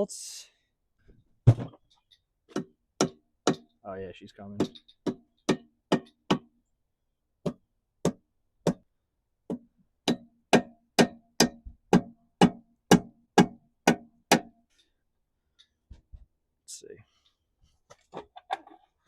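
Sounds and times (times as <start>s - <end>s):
hammer knocking on metal: 4.6s - 6.5s, 9.5s - 14.5s.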